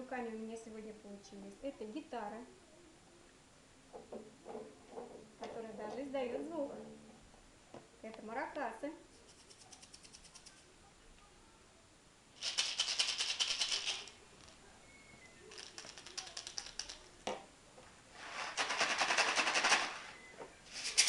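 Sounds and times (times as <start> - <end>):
maracas rattling: 9.1 - 10.7, 12.4 - 14.6, 15.5 - 17.2, 18.5 - 20.0.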